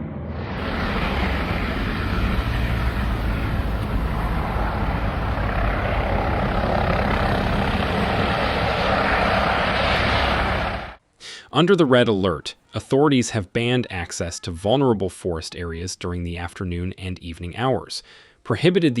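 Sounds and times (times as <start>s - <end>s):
loud rushing noise: 0.0s - 11.0s
propeller aircraft engine droning: 0.0s - 11.0s.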